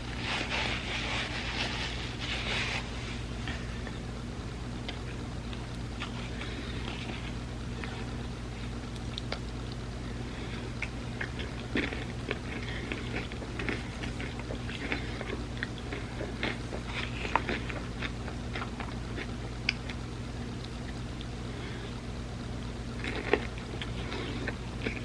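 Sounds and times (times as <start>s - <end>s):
steady low hum: 0.0s - 25.0s
person chewing food: 4.8s - 21.4s, 23.0s - 25.0s.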